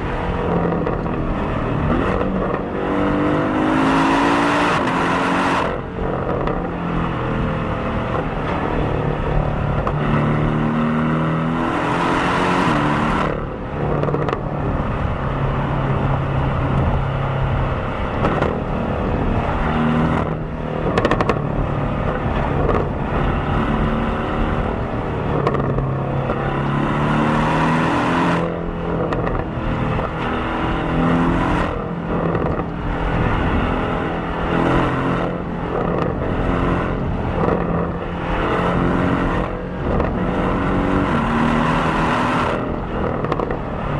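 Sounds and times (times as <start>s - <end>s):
car engine accelerating: 0.0s - 43.9s.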